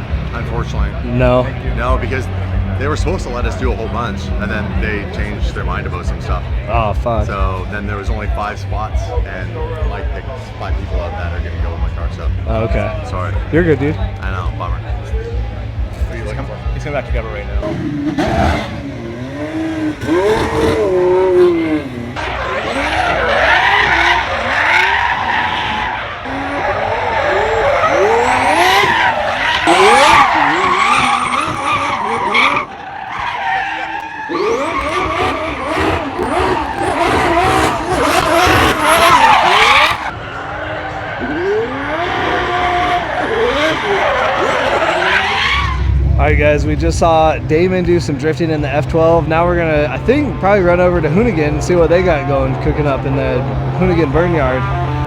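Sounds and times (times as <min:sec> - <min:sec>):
car engine revving: 0:00.0 - 0:55.0
tyres screeching: 0:10.2 - 0:46.8.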